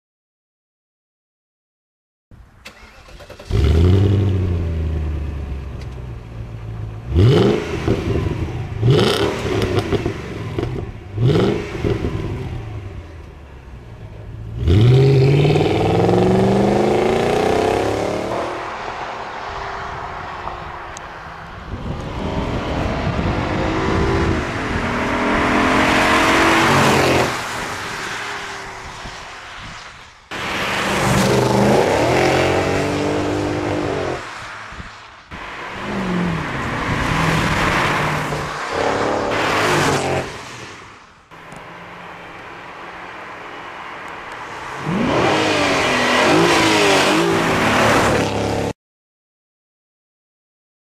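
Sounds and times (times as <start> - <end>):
car engine revving: 6.5 - 18.9, 21.9 - 27.7, 30.3 - 34.2, 35.4 - 40.5, 44.4 - 48.7.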